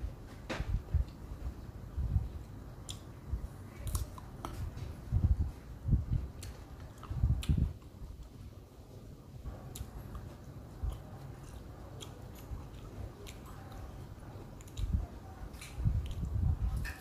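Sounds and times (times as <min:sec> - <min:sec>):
person chewing fruit: 0:02.8 - 0:04.7, 0:06.2 - 0:08.4, 0:09.5 - 0:16.4
small mouth clicks: 0:06.4 - 0:07.9.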